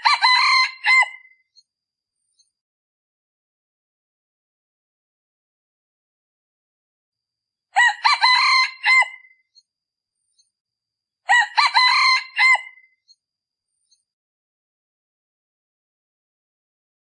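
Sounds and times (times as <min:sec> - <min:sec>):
rooster crowing: 0:00.0 - 0:01.3, 0:07.8 - 0:09.3, 0:11.3 - 0:12.8.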